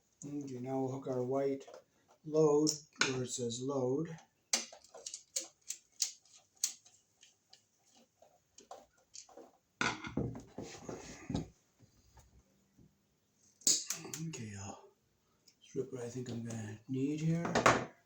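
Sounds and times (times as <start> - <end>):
hand tools clicking and tapping: 4.5 - 10.1
electrical wire rustling: 4.6 - 12.3.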